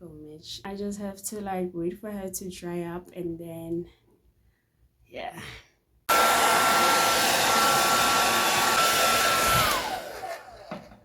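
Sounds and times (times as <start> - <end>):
hair dryer blowing: 6.1 - 11.0.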